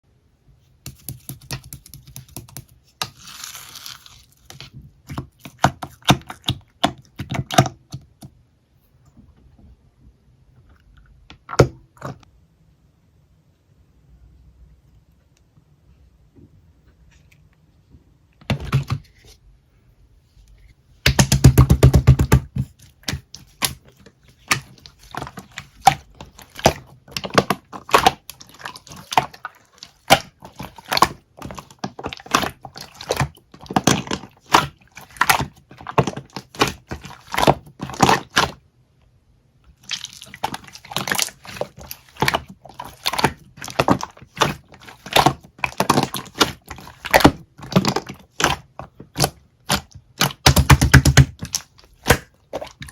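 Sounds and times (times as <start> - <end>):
slime squished by hand: 21.0 - 38.6, 39.7 - 52.9
loud slime squelch: 21.0 - 38.7, 39.7 - 52.9.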